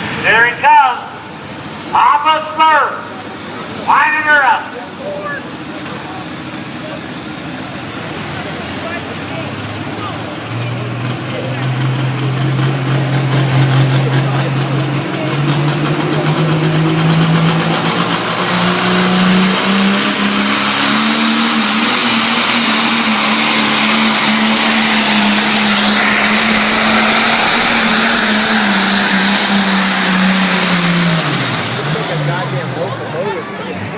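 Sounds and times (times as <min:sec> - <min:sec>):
tractor engine at high revs: 0:00.0 - 0:33.9.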